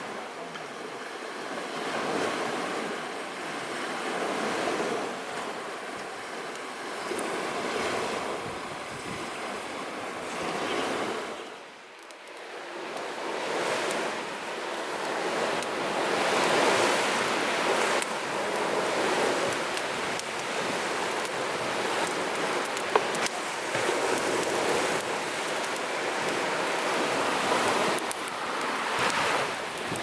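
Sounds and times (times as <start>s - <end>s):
sea waves on shore: 0.0s - 30.0s.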